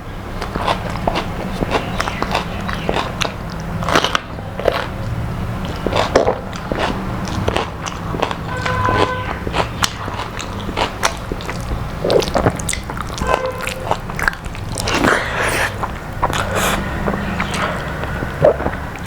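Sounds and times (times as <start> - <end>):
person chewing crisp food: 0.4 - 19.0
mouth sounds: 8.9 - 19.0.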